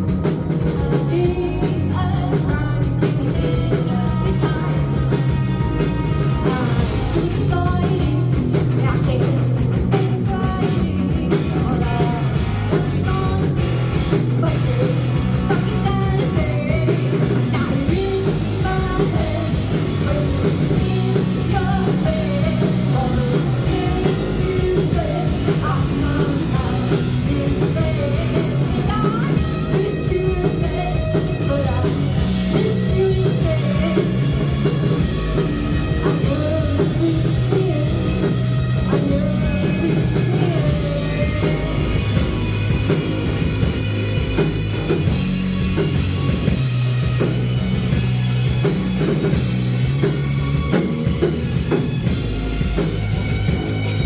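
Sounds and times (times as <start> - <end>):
rock band playing live: 0.0 - 54.0
person singing: 0.3 - 43.0.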